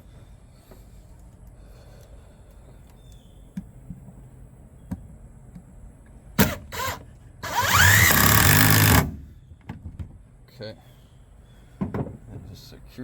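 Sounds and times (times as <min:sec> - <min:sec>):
power drill driving screw into wood: 0:06.4 - 0:09.3.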